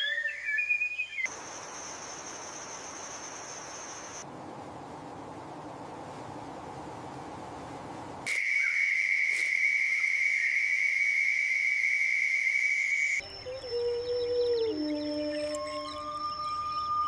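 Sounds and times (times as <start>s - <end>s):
high-pitched whistling tone: 8.3s - 17.0s
soft music with falling note: 13.2s - 17.0s.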